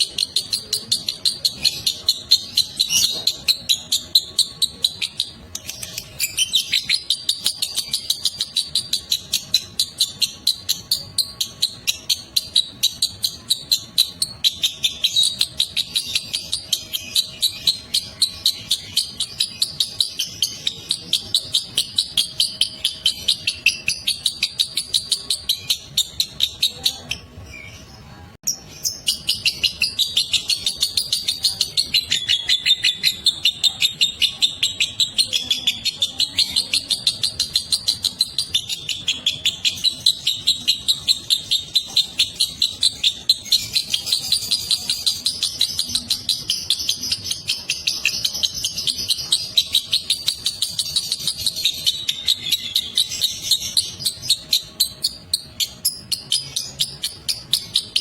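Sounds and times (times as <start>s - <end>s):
lovebird chattering trill: 0.0s - 27.9s, 28.5s - 58.0s.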